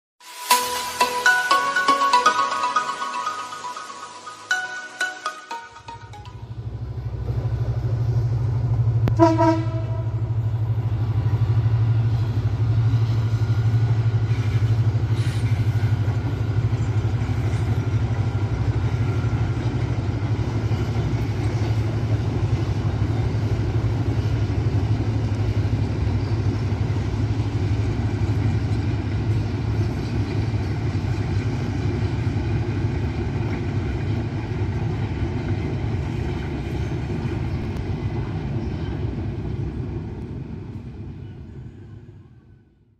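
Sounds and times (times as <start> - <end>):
diesel locomotive engine droning: 0.5 - 42.9
train coaches rumbling on rails: 6.4 - 42.9.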